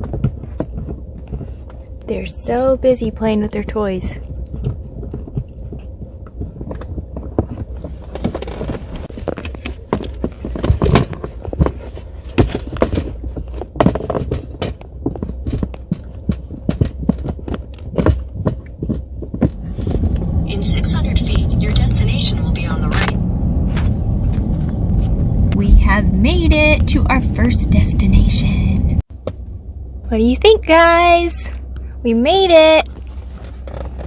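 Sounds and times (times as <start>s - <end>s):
low road rumble: 0.0s - 34.0s
puppies chewing toys: 4.1s - 20.0s
taps knocks and rustles: 4.4s - 20.0s.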